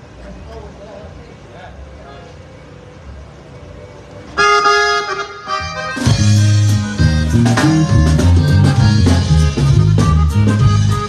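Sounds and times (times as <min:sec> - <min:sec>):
accordion playing: 0:01.8 - 0:11.0
band playing with bass and drums: 0:05.3 - 0:11.0.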